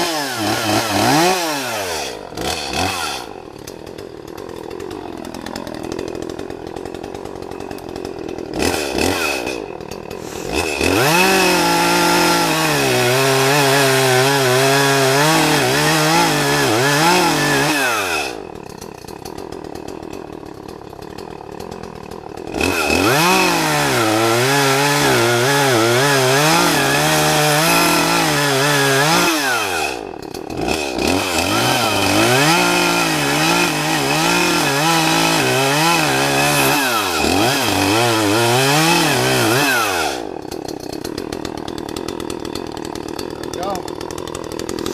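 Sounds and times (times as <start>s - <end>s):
chainsaw cutting tree trunk: 0.0s - 44.9s.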